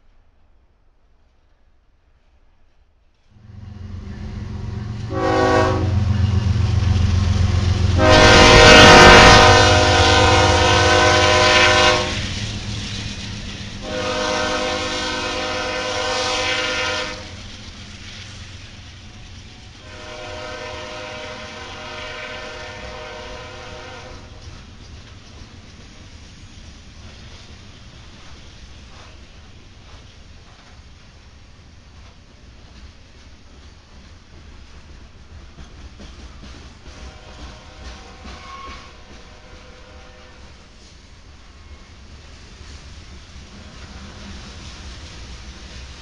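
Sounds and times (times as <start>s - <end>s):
train wheels on rails: 1.2s - 46.0s
diesel locomotive engines rumbling: 3.2s - 46.0s
locomotive horn blasts: 5.0s - 6.4s, 7.9s - 12.3s, 13.8s - 17.4s, 19.8s - 24.4s, 37.0s - 40.6s.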